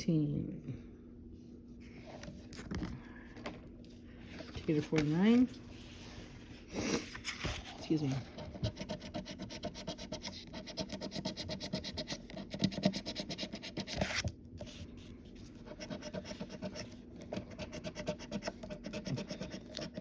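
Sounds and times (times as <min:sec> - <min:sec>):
lottery ticket being scratched: 0:08.0 - 0:14.0, 0:15.7 - 0:20.0.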